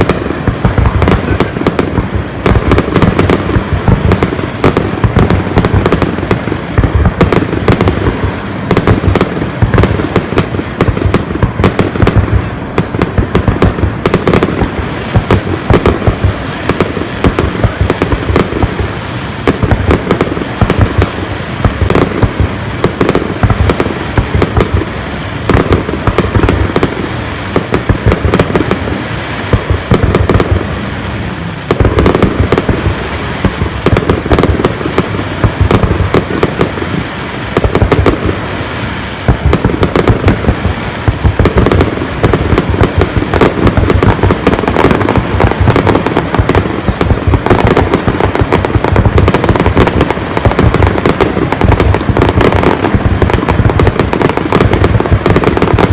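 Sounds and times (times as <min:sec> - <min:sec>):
fireworks bangs and crackling: 0:00.0 - 0:55.9.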